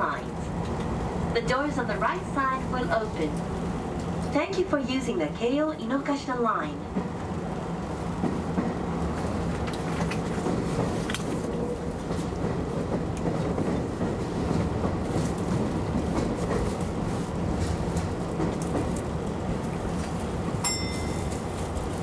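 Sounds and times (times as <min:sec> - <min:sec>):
train wheels rumbling on track: 0:00.0 - 0:22.0
rail joint clicks: 0:00.5 - 0:01.1, 0:02.7 - 0:04.7, 0:08.1 - 0:22.0.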